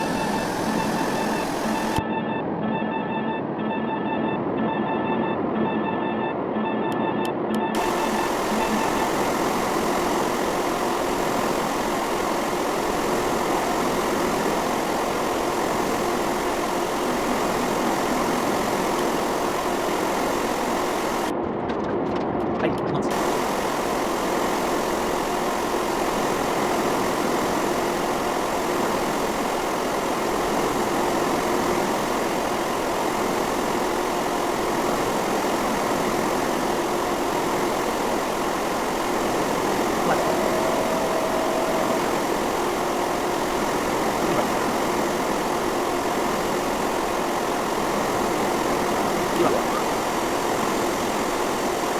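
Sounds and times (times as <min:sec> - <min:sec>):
jet engines running: 0:00.0 - 0:02.0, 0:07.7 - 0:21.4, 0:22.9 - 0:51.9
brief higher tone: 0:40.0 - 0:42.5.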